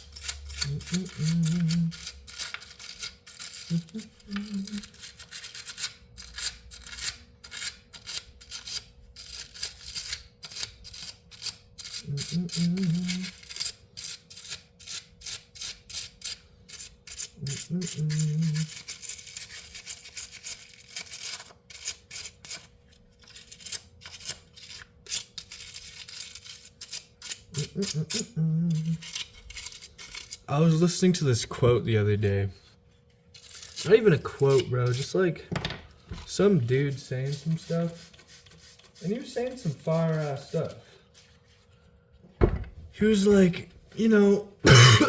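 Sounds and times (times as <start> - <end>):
rapid scrubbing strokes: 36.9 - 41.4.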